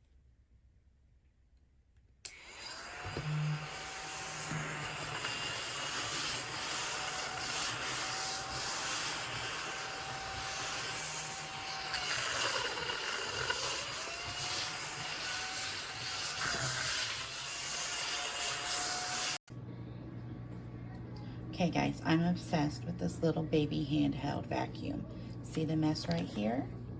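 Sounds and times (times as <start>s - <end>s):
mini vacuum cleaner whine: 2.3s - 19.4s.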